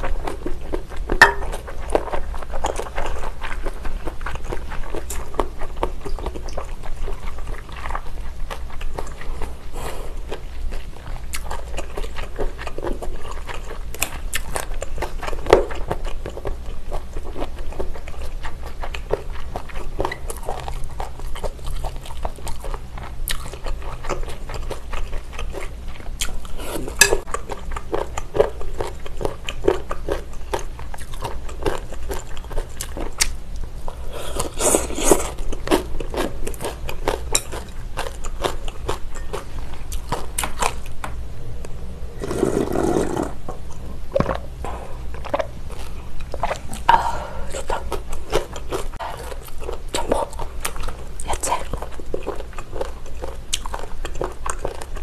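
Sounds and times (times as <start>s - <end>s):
chewing and biting food: 0.0s - 41.1s, 42.2s - 55.0s
chopsticks tapping glass bowl: 1.2s - 1.6s.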